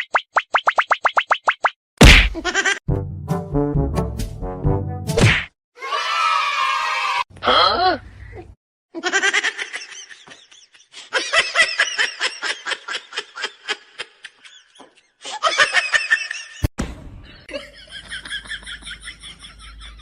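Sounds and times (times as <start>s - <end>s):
person laughing: 2.3s - 2.8s.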